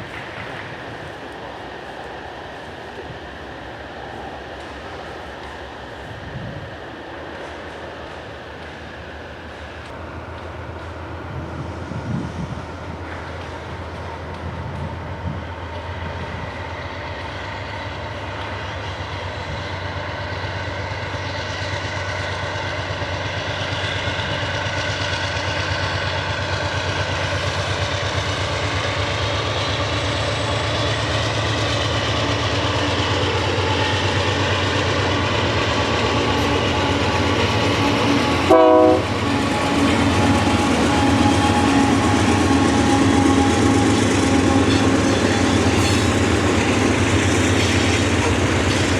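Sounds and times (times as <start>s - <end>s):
freight train passing: 0.0s - 48.9s
train horn toot: 37.8s - 46.1s.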